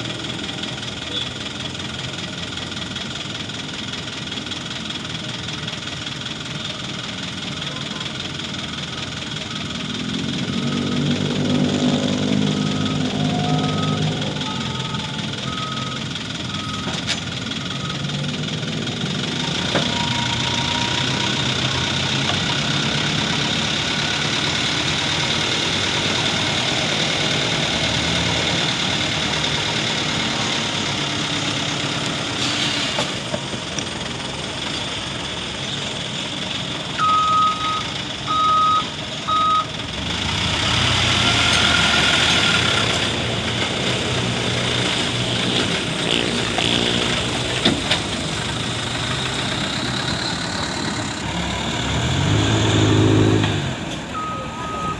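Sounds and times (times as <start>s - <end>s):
dump truck engine running: 0.0s - 54.9s
reversing alarm beeps: 12.5s - 17.0s, 17.6s - 18.2s, 19.4s - 21.5s, 37.0s - 39.7s, 54.2s - 54.9s.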